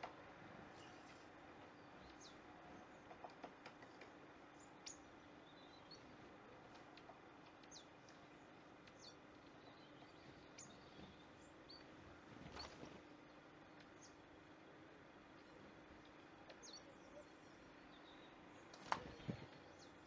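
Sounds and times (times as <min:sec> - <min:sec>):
faint low hum: 0:00.0 - 0:20.0
small clicks: 0:03.0 - 0:04.2.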